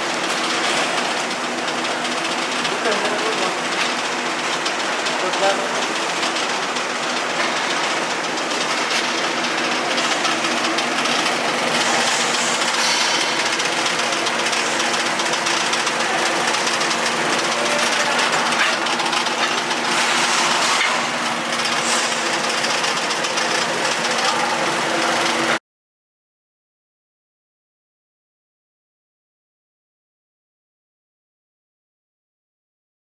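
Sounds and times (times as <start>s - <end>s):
welding arc crackling: 0.0s - 25.6s
welding machine hum: 0.0s - 25.6s.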